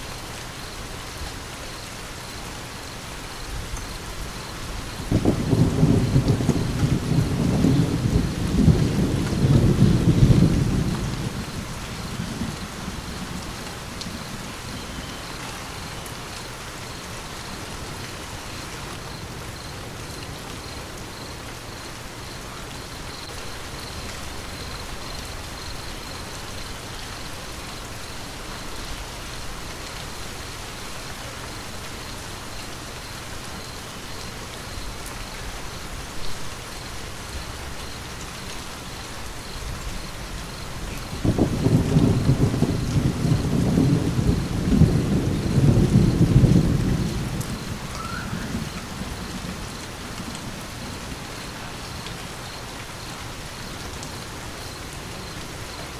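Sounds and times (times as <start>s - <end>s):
steady rain falling: 0.0s - 55.9s
thunder rumble: 4.1s - 16.3s, 39.6s - 52.7s.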